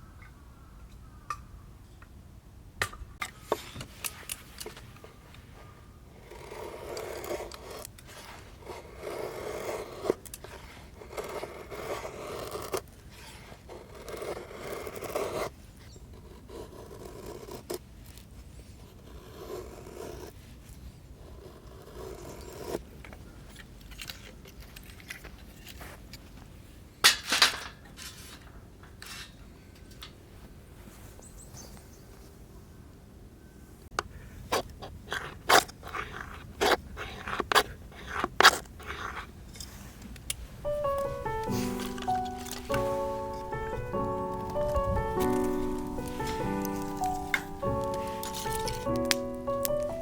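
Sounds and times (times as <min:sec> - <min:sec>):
scraping or cutting strokes: 0:40.6 - 0:50.0.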